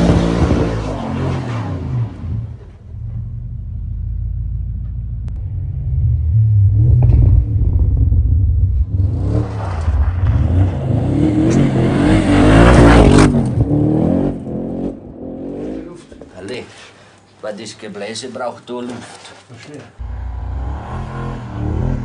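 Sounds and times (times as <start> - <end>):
engine revving hard: 20.0 - 22.0.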